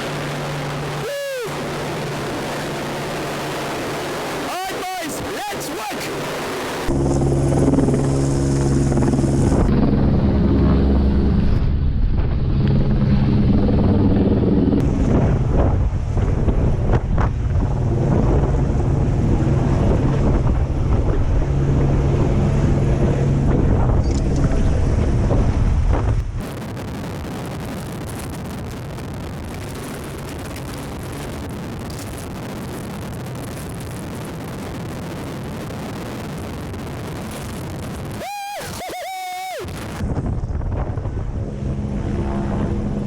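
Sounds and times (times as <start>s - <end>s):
even rushing noise: 0.0s - 7.0s
helicopter rotor and engine drone: 0.0s - 25.4s, 38.2s - 43.0s
rotor wash buffeting microphone: 0.0s - 43.0s.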